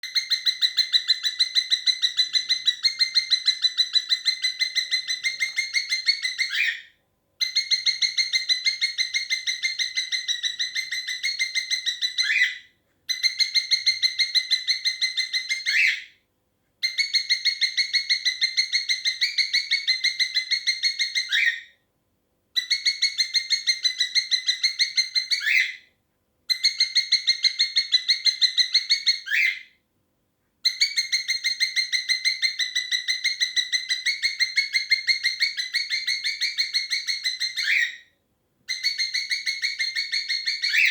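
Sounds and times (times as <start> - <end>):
cockatiel chirping in trills: 0.0 - 16.2, 16.8 - 21.8, 22.6 - 25.9, 26.5 - 29.8, 30.6 - 40.9.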